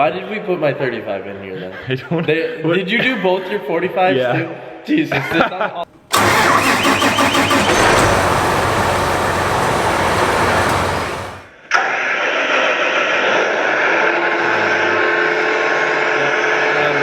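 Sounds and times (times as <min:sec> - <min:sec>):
engine humming steadily: 0:05.9 - 0:11.5
loud diesel engine rushing: 0:05.9 - 0:11.5.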